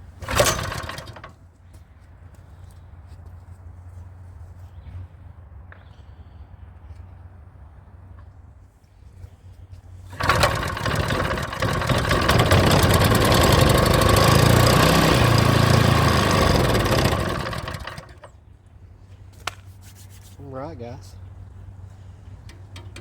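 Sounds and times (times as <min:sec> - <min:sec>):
small engine running fast: 0:00.2 - 0:01.3, 0:10.1 - 0:18.3.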